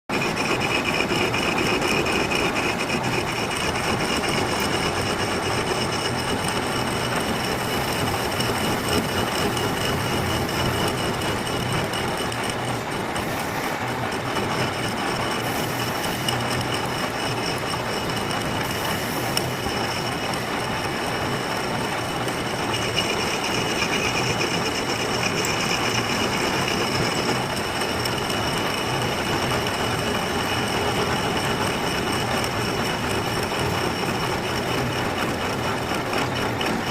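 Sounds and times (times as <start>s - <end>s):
metal lathe running: 0.1s - 36.9s.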